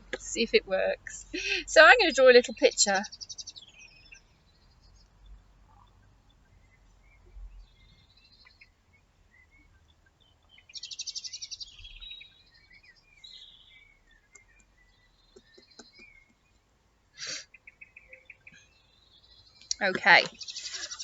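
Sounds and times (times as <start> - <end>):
birds singing: 0.0 - 21.0.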